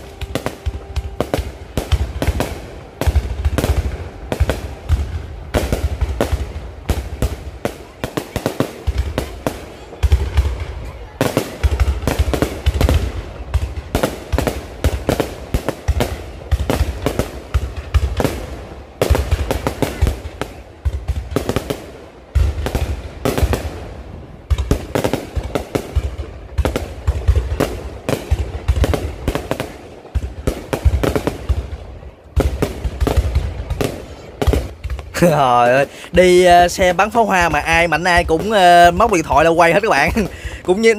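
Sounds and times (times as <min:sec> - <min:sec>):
heavy low booms: 0:00.0 - 0:07.6
fireworks bangs and crackles: 0:00.0 - 0:40.9.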